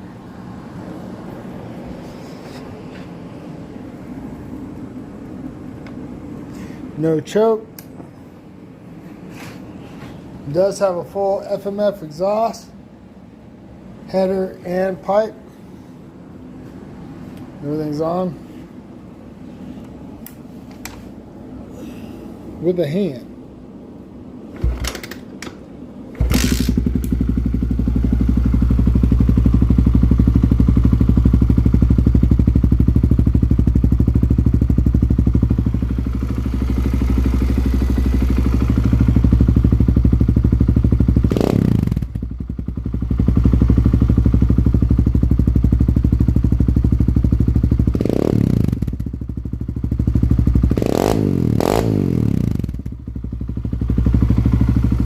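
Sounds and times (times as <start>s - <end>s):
small motorcycle engine idling: 26.1s - 55.0s.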